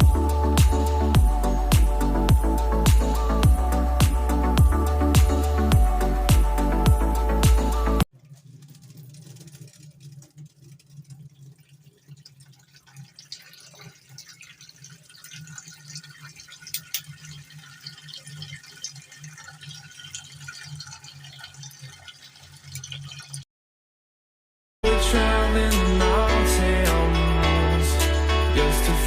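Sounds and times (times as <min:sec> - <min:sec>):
tap water running into sink: 0:08.1 - 0:23.4.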